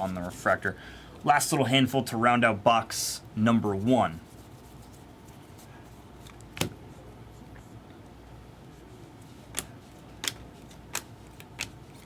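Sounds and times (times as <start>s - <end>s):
cards clicking against cards: 9.5s - 12.0s.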